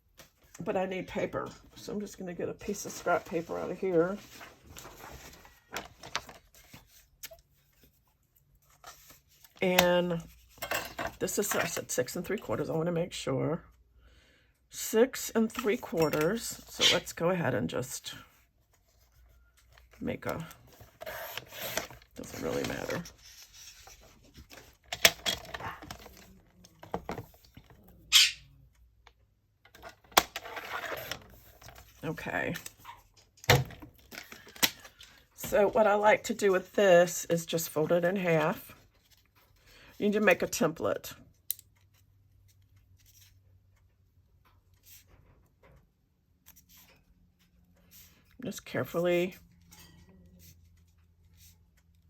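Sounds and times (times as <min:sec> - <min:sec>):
paper rustling and folding: 0:02.0 - 0:10.6, 0:18.3 - 0:27.8.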